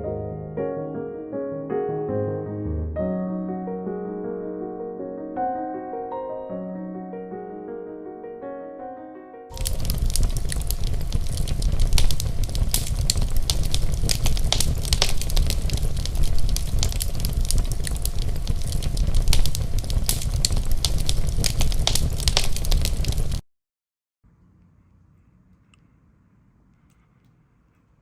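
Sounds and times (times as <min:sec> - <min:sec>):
campfire crackling and popping: 0:09.5 - 0:23.4
low fire rumble: 0:09.5 - 0:23.4.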